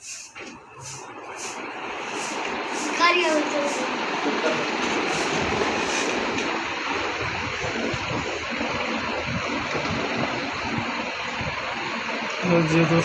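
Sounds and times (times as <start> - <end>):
ceiling fan rushing: 0.0 - 13.0
low fluttering rumble: 4.6 - 13.0.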